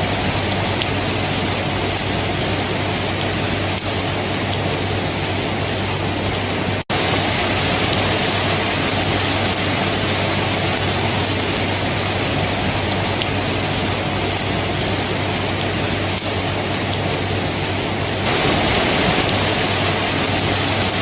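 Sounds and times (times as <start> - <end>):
heavy rainfall: 0.0 - 21.0.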